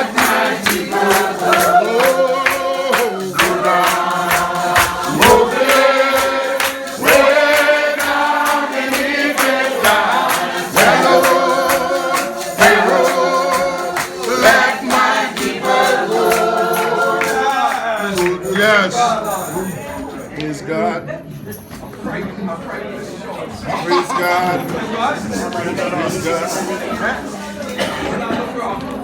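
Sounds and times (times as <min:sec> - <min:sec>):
congregation singing a hymn: 0:00.0 - 0:19.1
steady percussive beat: 0:00.0 - 0:19.6.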